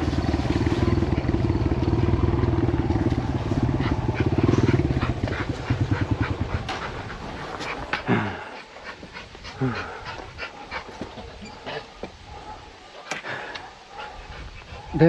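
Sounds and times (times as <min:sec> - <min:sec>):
dirt bike engine running: 0:00.0 - 0:08.0.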